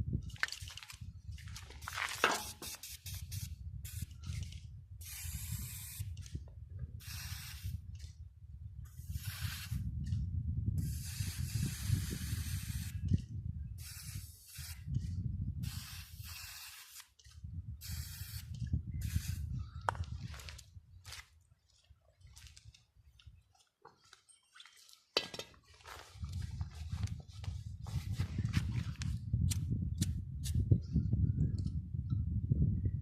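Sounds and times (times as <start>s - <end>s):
spray paint hissing bursts: 2.3s - 4.1s, 5.0s - 6.1s, 7.0s - 7.7s, 9.1s - 9.8s, 10.8s - 13.0s, 13.8s - 14.9s, 15.6s - 17.1s, 17.8s - 19.4s.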